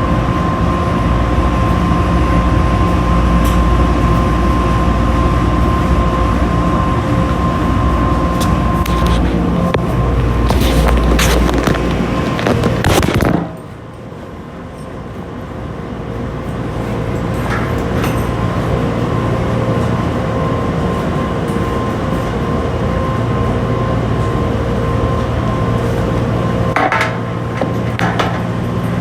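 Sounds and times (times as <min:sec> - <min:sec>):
loud rushing noise: 0:00.0 - 0:13.8
washing machine humming: 0:00.0 - 0:29.0.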